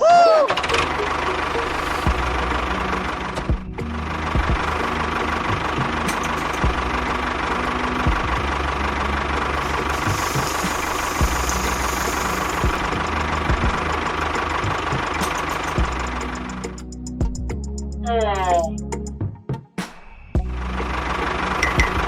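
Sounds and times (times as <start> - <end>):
small engine running: 0.5 - 17.0, 20.4 - 22.0.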